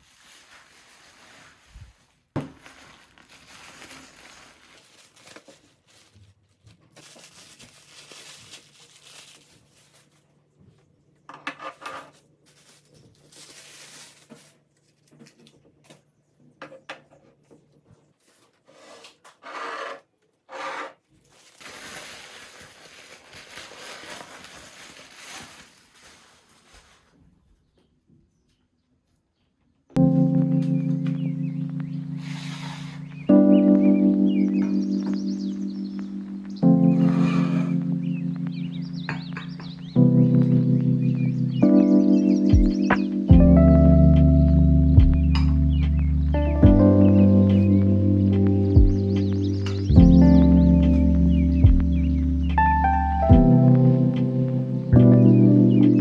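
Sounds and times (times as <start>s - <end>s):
rustling and rubbing: 0.0s - 10.8s, 11.6s - 15.5s, 17.3s - 27.5s, 31.1s - 42.5s.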